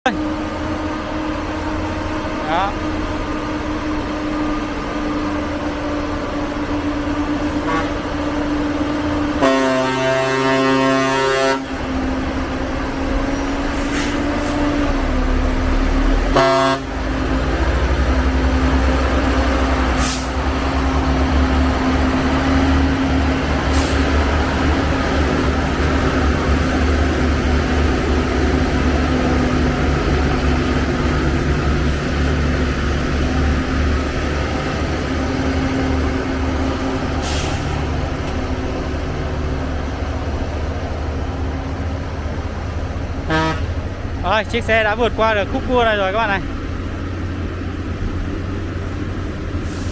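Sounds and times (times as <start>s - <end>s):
truck engine drone: 0.0s - 49.9s
vehicle horn: 7.6s - 8.0s, 9.4s - 11.7s, 16.3s - 17.0s, 43.3s - 43.8s.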